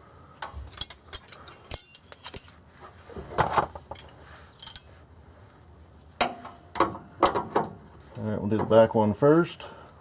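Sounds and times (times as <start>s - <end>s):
metal hand tools clinking: 0.7s - 2.7s, 4.0s - 5.1s.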